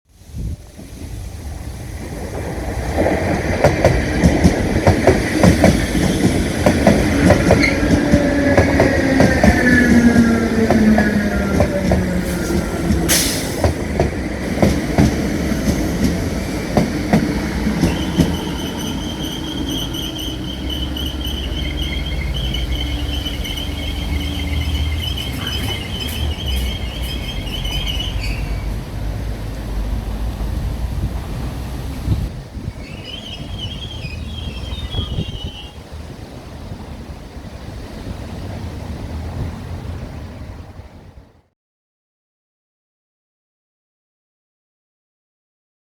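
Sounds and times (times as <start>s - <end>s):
falling train whine: 0.2s - 41.4s
train wheels clattering: 2.1s - 28.9s
wheel or brake squeal: 17.8s - 28.8s, 32.7s - 35.8s.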